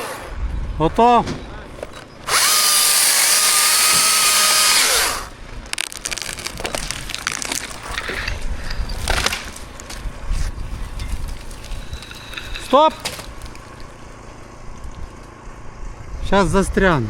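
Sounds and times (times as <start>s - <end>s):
chainsaw cutting wood: 2.2s - 7.8s
wood cracking and snapping: 2.5s - 10.1s, 11.0s - 15.3s.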